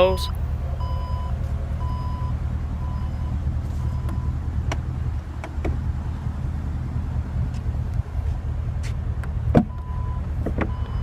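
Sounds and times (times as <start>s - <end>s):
warning chime beeps: 0.0s - 4.4s
low rumble: 0.0s - 11.0s.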